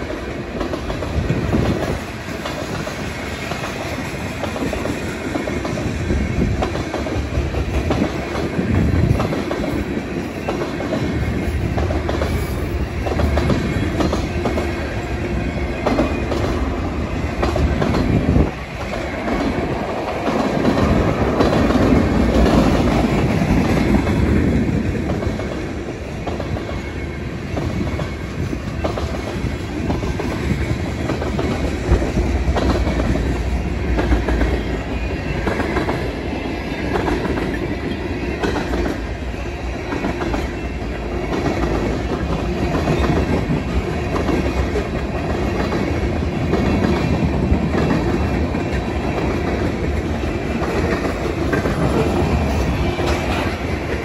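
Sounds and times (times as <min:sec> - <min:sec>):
freight train rumbling past: 0:00.0 - 0:54.0
wheels clicking over rail joints: 0:36.8 - 0:54.0.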